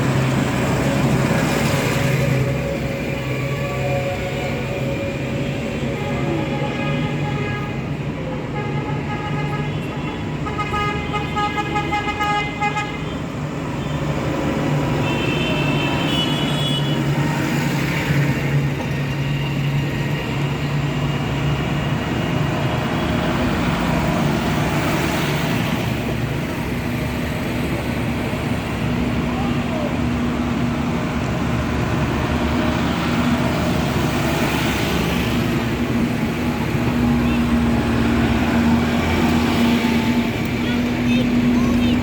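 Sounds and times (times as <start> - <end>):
tractor engines running: 0.0 - 8.6, 13.2 - 42.0
horns tooting: 36.7 - 42.0.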